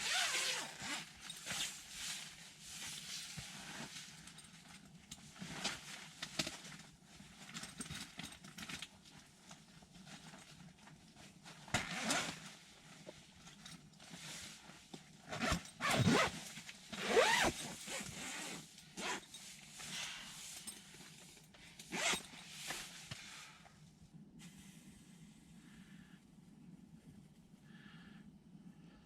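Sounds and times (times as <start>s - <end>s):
zipper pulled: 0.0s - 1.8s, 11.8s - 12.5s, 15.3s - 19.4s, 21.9s - 22.8s.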